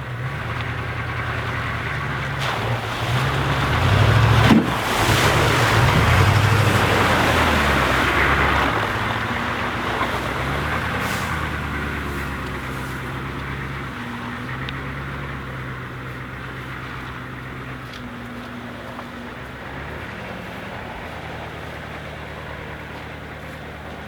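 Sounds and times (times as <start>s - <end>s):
vehicle engine under load: 0.0s - 24.0s.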